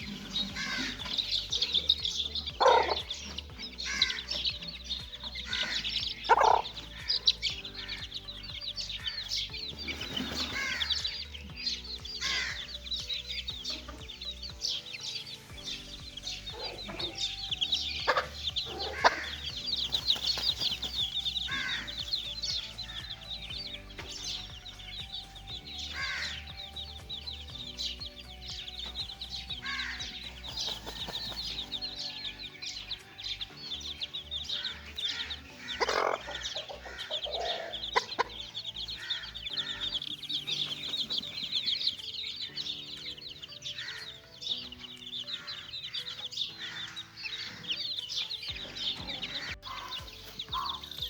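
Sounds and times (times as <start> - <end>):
hen clucks: 0.0 - 8.1, 16.5 - 17.3, 18.0 - 22.2, 34.6 - 40.1, 48.6 - 50.9
chicks peeping: 0.0 - 51.0.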